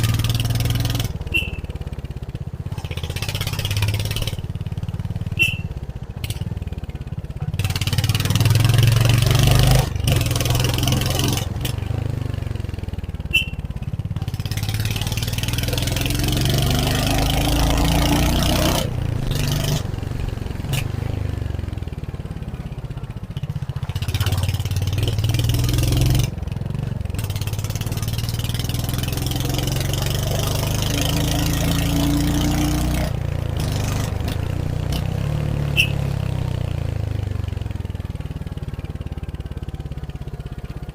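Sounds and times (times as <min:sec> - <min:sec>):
motorcycle engine shifting gears: 0:00.0 - 0:40.9.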